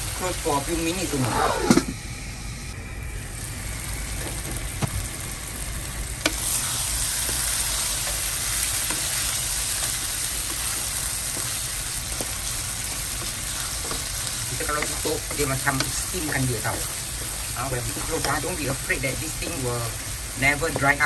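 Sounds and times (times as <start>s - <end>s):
food sizzling in a wok: 0.0s - 2.4s, 3.2s - 21.0s
wooden spatula scraping: 6.4s - 20.0s.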